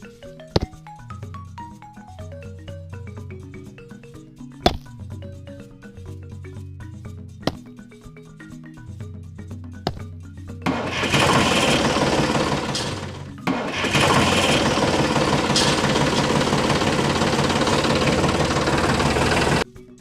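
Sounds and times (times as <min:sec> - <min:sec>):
small motor running: 0:10.7 - 0:19.6.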